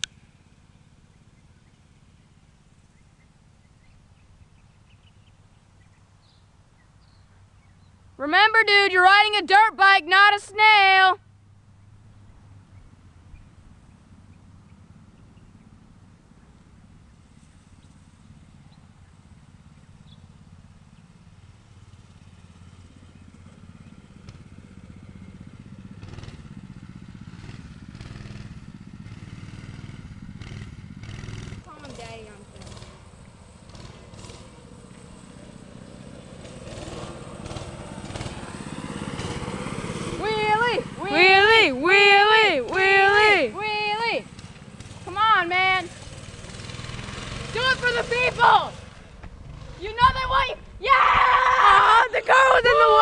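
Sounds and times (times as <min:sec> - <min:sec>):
distant dirt bike engine: 0:00.0 - 0:53.0
faint bird chirps: 0:02.8 - 0:08.0.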